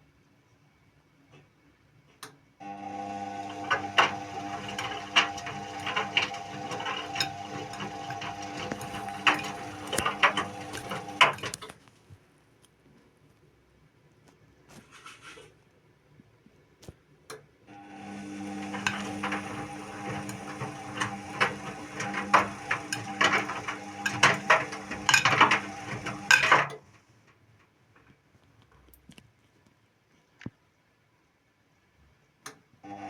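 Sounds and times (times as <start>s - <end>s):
washing machine drum turning: 3.1s - 11.6s, 17.8s - 26.8s
clicks and knocks: 3.7s - 11.9s, 18.6s - 26.9s.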